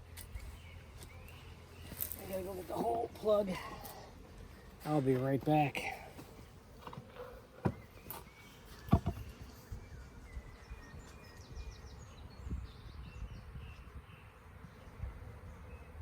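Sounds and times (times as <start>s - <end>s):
honeybees buzzing: 0.0s - 16.0s
sharp knocks: 8.9s - 9.2s.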